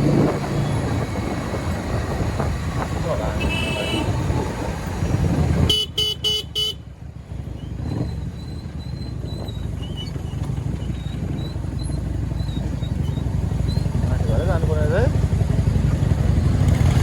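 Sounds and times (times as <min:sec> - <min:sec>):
motorcycle rumble on highway: 0:00.0 - 0:17.0
vehicle horn beeps: 0:03.4 - 0:04.2, 0:05.7 - 0:06.8.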